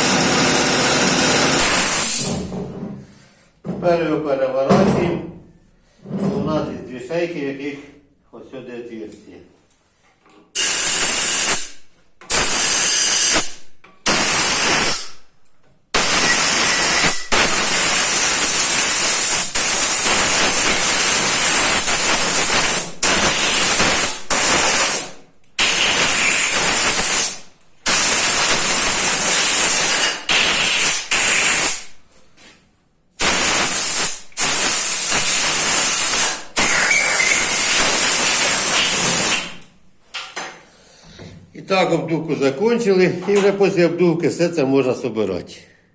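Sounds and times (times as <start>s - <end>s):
compressed air blow gun hissing: 1.5s - 2.3s, 16.0s - 31.9s, 33.2s - 39.6s.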